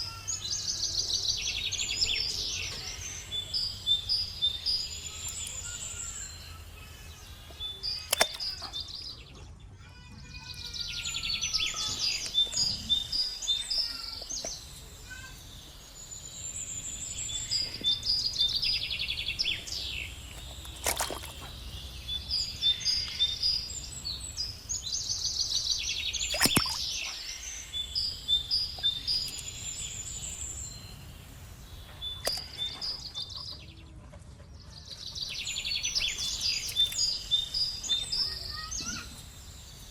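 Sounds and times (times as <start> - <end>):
birds chirping and trilling: 0.0 - 39.9
sharp clicks: 8.0 - 8.8, 32.2 - 32.8.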